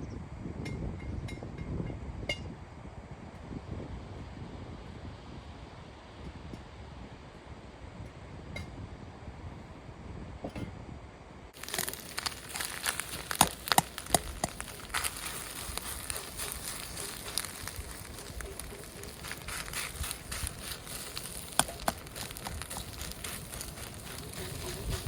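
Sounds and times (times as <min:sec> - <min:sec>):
campfire crackling and popping: 0:11.6 - 0:25.0.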